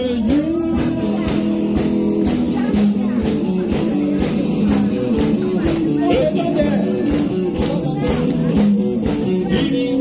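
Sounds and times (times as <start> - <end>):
live rock band playing: 0.0 - 10.0.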